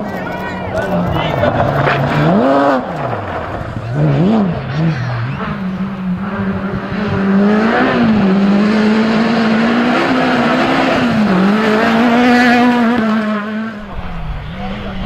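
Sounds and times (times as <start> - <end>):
rally car engine revving high: 0.0 - 15.0.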